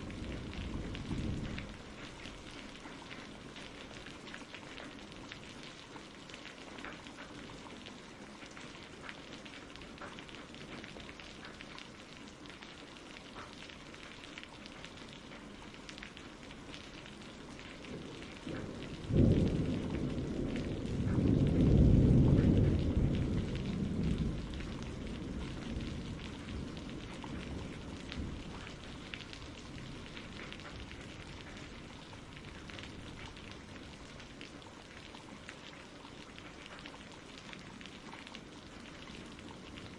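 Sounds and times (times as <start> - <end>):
thunder clap and rumble: 0.0 - 4.0, 17.6 - 35.0
steady rain pattering: 0.0 - 39.9.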